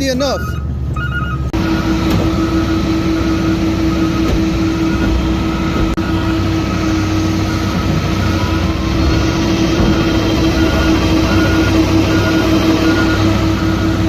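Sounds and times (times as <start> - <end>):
constant whine: 0.0 - 14.0
garbage truck engine rumbling: 0.0 - 14.0.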